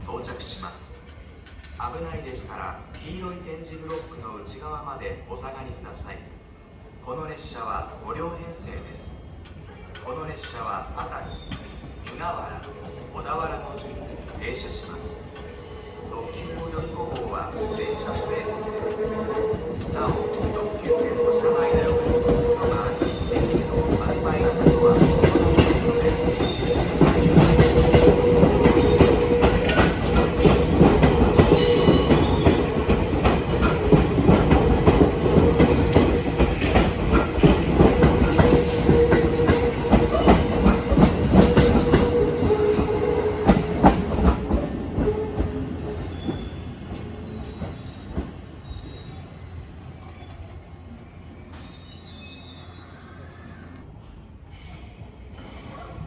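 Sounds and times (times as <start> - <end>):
electric train running: 19.4 - 45.6
wheels clacking over rail joints: 21.8 - 48.6.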